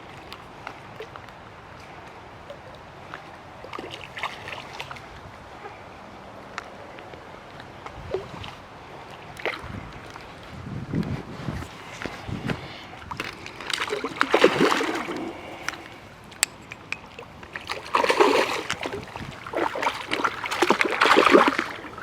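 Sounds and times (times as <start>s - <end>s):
fish splashing in water: 12.2s - 22.0s.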